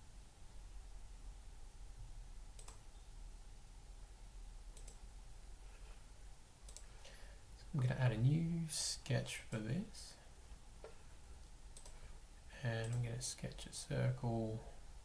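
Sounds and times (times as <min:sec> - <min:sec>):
faint low hum: 0:00.0 - 0:15.0
computer mouse clicking: 0:02.6 - 0:02.8, 0:04.7 - 0:05.0, 0:06.7 - 0:06.9, 0:11.7 - 0:12.0.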